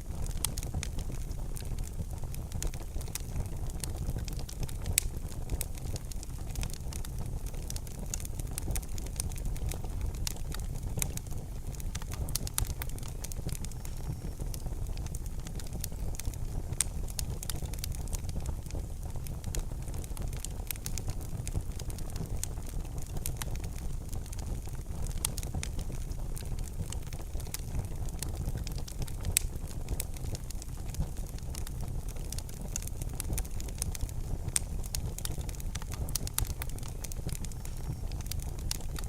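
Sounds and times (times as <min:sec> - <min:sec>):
wood fire crackling: 0:00.0 - 0:39.0.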